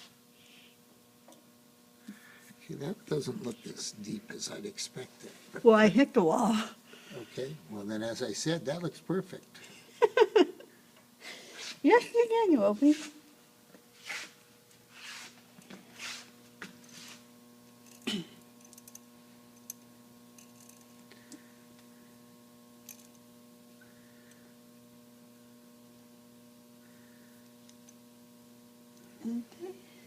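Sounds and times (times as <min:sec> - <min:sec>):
electrical hum: 0:00.0 - 0:30.0
short scraping sounds: 0:14.0 - 0:17.3.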